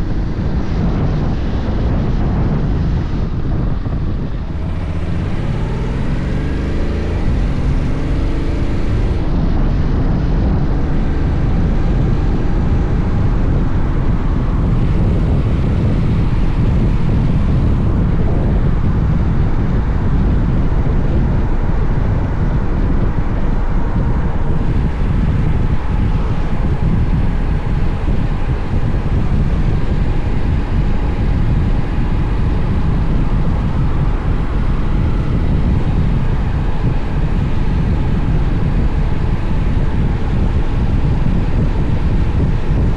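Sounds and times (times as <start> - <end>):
wind noise on microphone: 0.0 - 42.9
motorcycle engine pulling away: 4.5 - 9.2.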